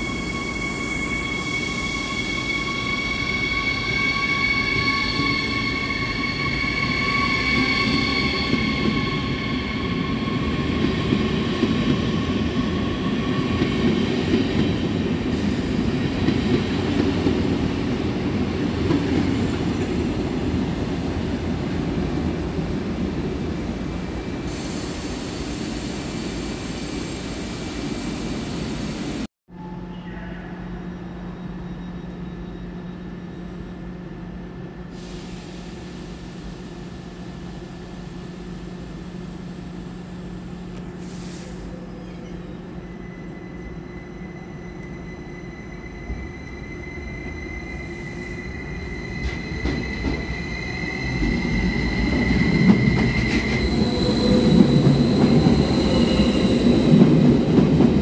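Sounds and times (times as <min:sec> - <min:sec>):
high multi-tone train whine: 0:00.0 - 0:58.0
train wheels rumbling: 0:47.7 - 0:58.0.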